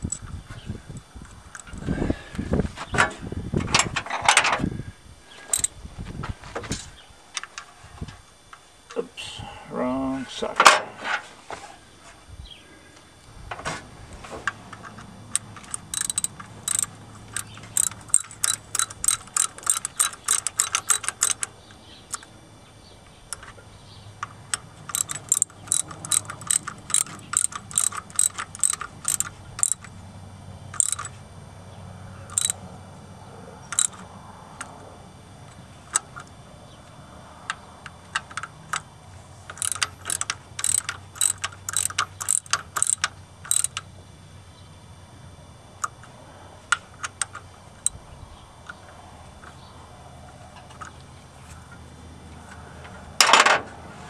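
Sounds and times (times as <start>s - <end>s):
socket ratchet clicking: 0.0s - 0.3s, 5.5s - 5.7s, 14.8s - 22.3s, 24.2s - 30.0s, 30.7s - 31.2s, 32.3s - 32.6s, 33.7s - 34.0s, 37.5s - 38.9s, 39.5s - 43.9s, 47.0s - 48.0s.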